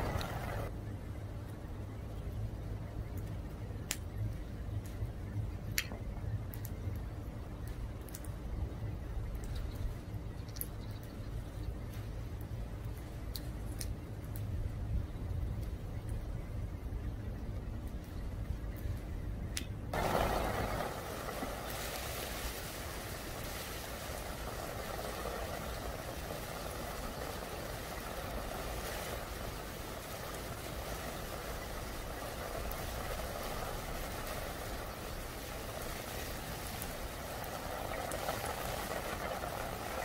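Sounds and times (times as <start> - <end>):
rain on stone pavement: 0.0 - 0.7, 19.9 - 40.0.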